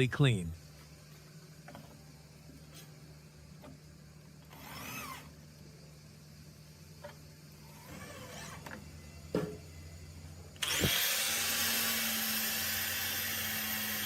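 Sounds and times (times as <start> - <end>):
power tool hissing: 10.6 - 14.0.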